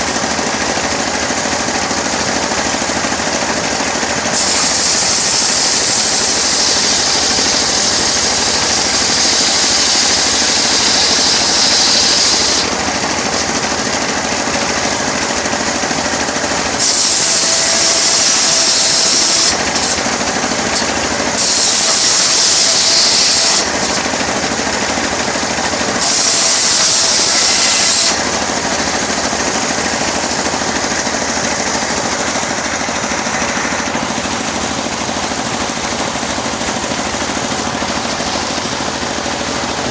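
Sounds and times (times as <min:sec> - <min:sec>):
sawmill engine running: 0:00.0 - 0:39.9
blade rasping through wood: 0:04.2 - 0:32.4.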